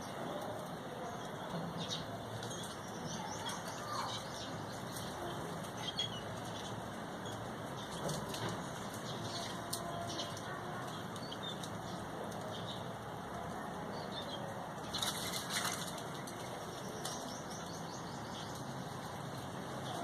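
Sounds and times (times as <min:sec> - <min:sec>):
bird wings flapping: 0:14.9 - 0:16.5.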